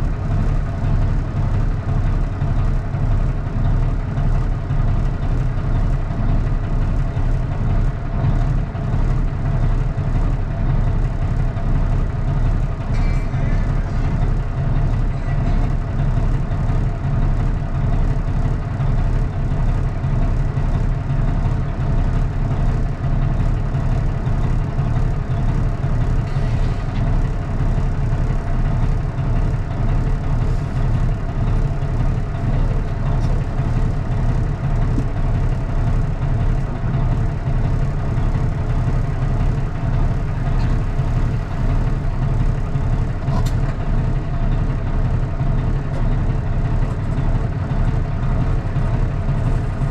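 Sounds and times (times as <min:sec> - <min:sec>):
diesel truck engine rumbling: 0:00.0 - 0:49.9.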